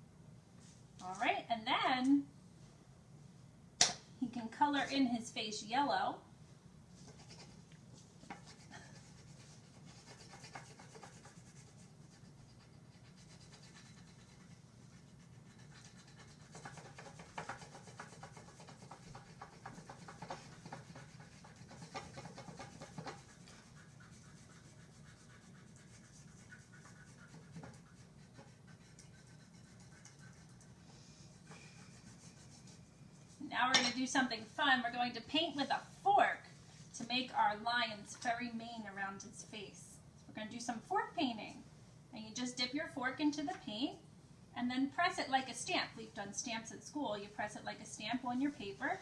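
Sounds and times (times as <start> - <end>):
low steady hum: 0.0 - 49.0
scribbling on paper: 7.0 - 7.6, 8.2 - 33.4.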